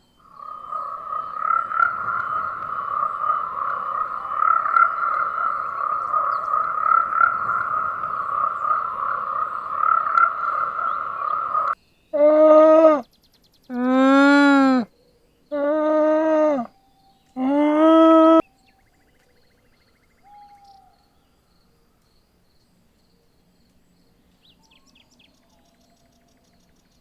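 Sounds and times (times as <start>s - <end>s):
chorus of trilling animal calls: 0.2s - 13.0s, 15.5s - 16.7s, 17.4s - 18.4s.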